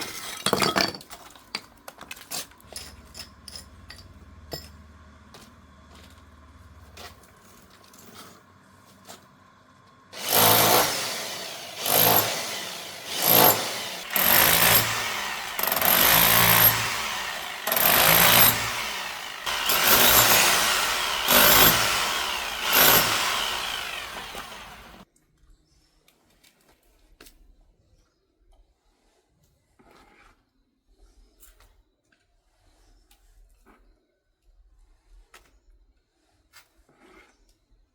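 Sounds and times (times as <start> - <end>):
power tool bursts: 10.2 - 25.0.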